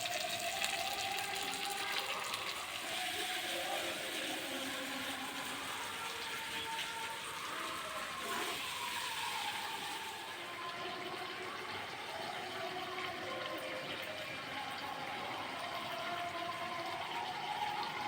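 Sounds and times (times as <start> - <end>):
running water: 0.0 - 18.0.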